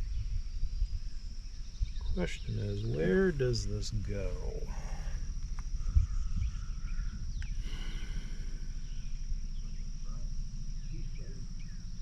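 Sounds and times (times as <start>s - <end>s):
insect trill: 0.0s - 12.0s
low rumble: 0.0s - 12.0s
faint click: 7.4s - 7.6s.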